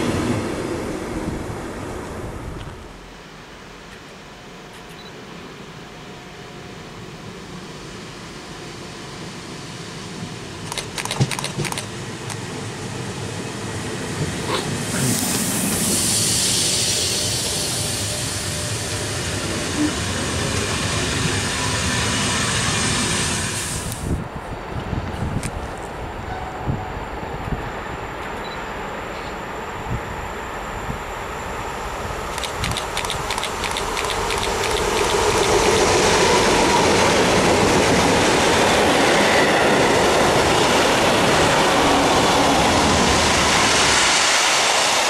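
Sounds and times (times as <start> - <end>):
passenger train running in: 0.0 - 45.0
sharp clicks: 10.7 - 12.4, 32.3 - 35.6
loud steady hiss: 14.7 - 24.4.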